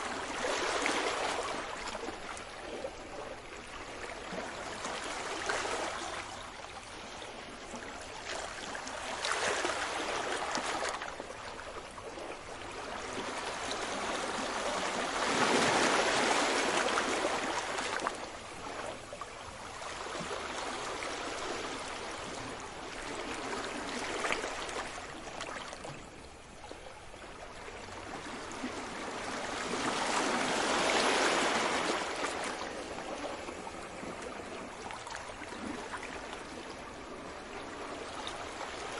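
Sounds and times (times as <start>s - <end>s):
sea waves washing ashore: 7.6s - 26.6s, 27.5s - 38.9s.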